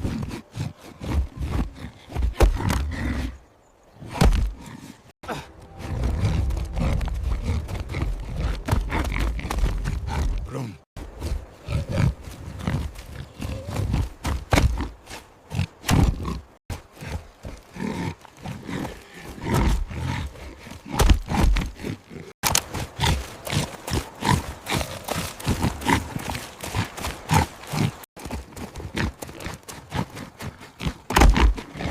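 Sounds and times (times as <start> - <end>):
wild boars grunting and roaring: 0.0 - 31.9
heavy low rumble: 5.4 - 10.5.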